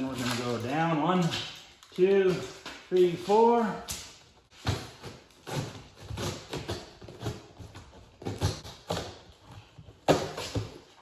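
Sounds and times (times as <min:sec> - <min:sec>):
knocks and thumps from unpacking: 0:03.9 - 0:11.0.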